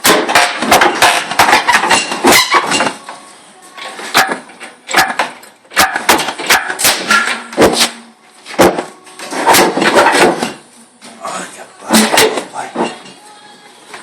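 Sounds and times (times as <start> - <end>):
tools knocking and clanking on metal: 0.0 - 3.2, 3.8 - 7.9, 8.5 - 10.6, 11.9 - 13.2.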